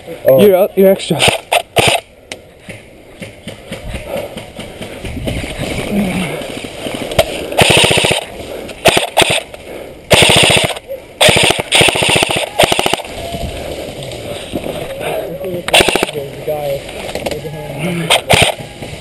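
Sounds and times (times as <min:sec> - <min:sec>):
airsoft guns firing bursts: 0:01.2 - 0:02.0, 0:07.5 - 0:09.5, 0:10.1 - 0:13.1, 0:15.7 - 0:16.2, 0:18.1 - 0:18.7.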